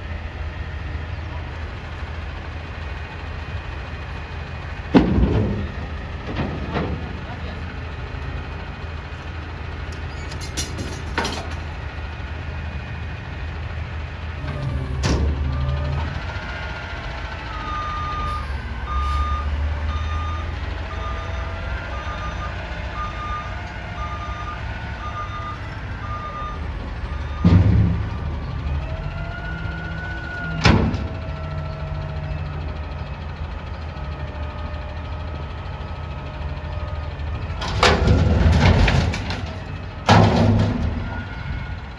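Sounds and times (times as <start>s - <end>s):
truck engine running: 0.0s - 41.9s
backup alarm beeping: 14.5s - 27.6s.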